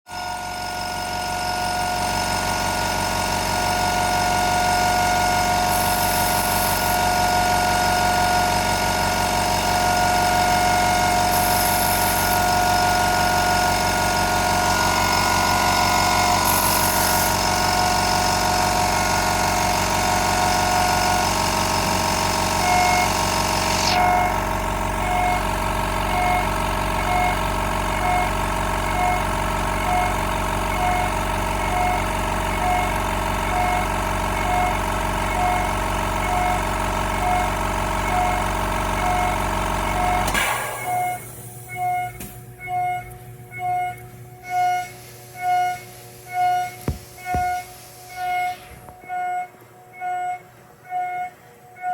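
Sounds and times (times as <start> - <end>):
router cutting aluminium whine: 0.1 - 27.0.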